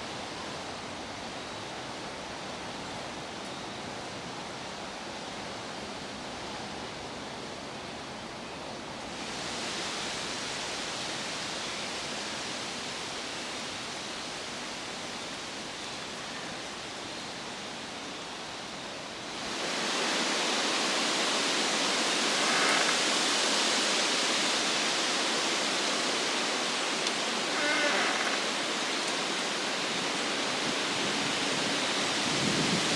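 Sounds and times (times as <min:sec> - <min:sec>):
wind rushing through trees: 0:00.0 - 0:32.9.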